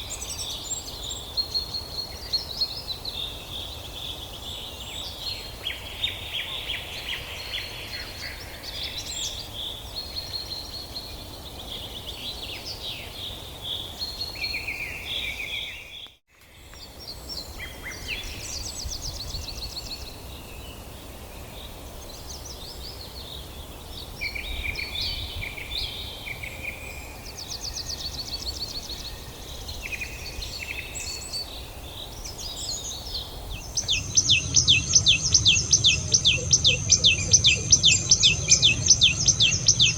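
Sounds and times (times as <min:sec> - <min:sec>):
songbirds chirping and trilling: 0:00.0 - 0:39.9
low outdoor rumble: 0:33.5 - 0:39.9.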